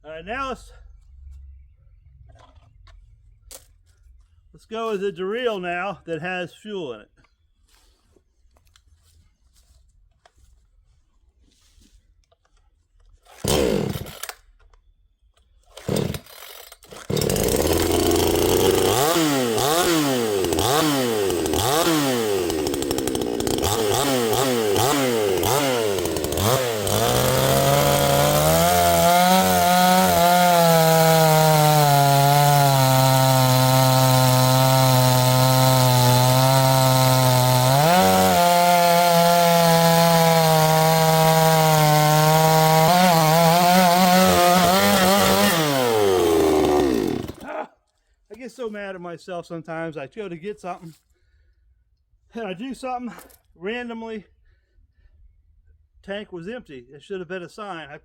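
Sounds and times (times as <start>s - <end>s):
chainsaw engine revving: 13.3s - 14.4s, 15.7s - 47.6s
chainsaw pull starter: 13.3s - 14.5s, 15.7s - 47.5s.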